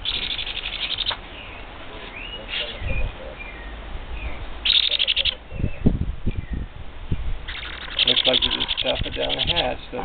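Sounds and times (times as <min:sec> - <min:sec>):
baby parrot begging calls: 0:04.6 - 0:05.4, 0:07.5 - 0:09.8.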